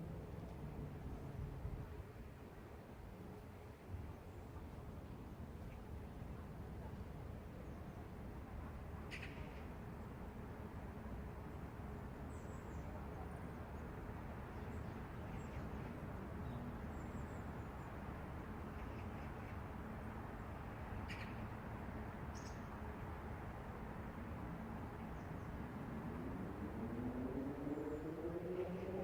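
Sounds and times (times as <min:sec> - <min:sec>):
distant traffic rumble: 0:08.3 - 0:29.0.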